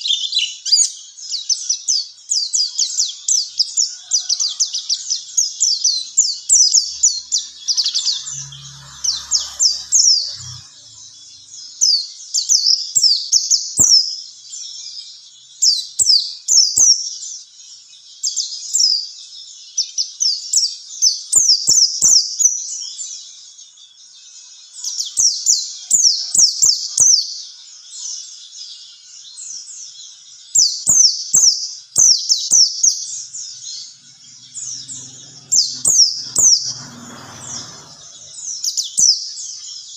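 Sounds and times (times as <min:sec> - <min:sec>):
songbird twittering: 0:29.3 - 0:39.9.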